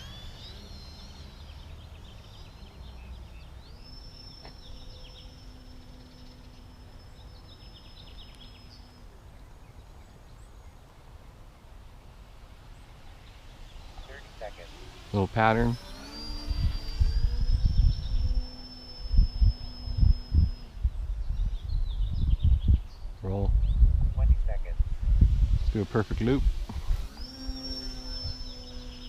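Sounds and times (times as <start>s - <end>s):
model plane motor whine: 0.0s - 9.8s, 12.8s - 22.9s, 24.9s - 29.0s
faint chirps: 0.0s - 10.7s, 26.7s - 29.0s
low outdoor rumble: 0.0s - 29.0s.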